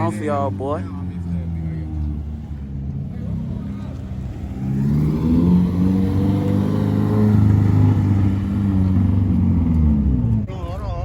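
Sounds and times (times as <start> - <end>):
car engine revving hard: 1.4 - 9.8.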